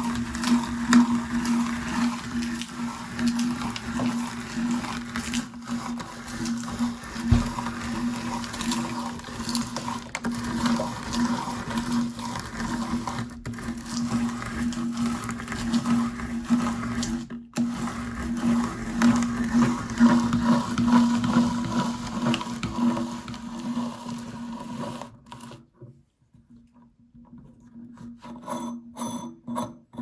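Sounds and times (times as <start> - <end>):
popcorn crunching: 0.0 - 17.2
meat grinder humming: 0.0 - 25.6.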